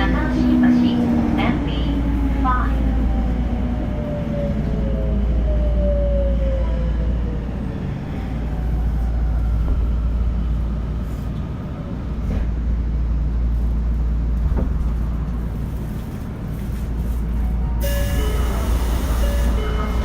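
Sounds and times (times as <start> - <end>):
wheels rumbling on rail: 0.0 - 20.0
train motor whine: 17.8 - 20.0.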